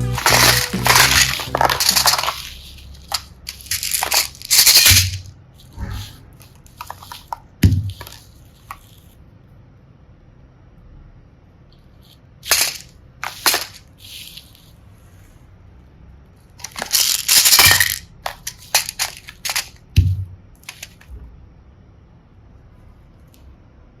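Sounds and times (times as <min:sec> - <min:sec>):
plastic pieces crunching: 0:00.0 - 0:05.3, 0:06.7 - 0:09.0, 0:12.4 - 0:14.5, 0:16.6 - 0:21.0.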